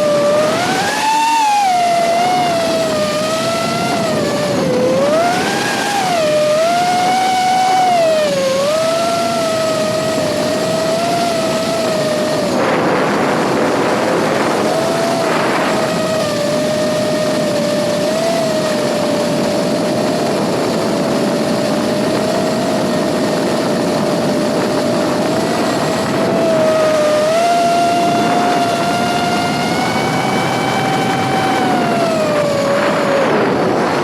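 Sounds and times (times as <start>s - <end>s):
drone propellers whining: 0.0s - 34.0s
wind noise rushes: 0.0s - 34.0s.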